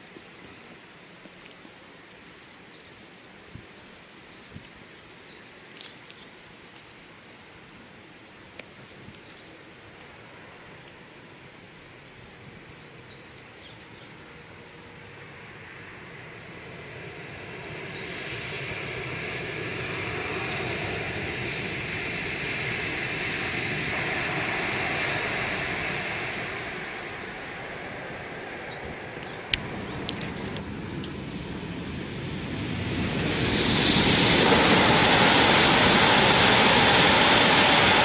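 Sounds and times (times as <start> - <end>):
high-speed train rushing past: 14.6 - 38.0.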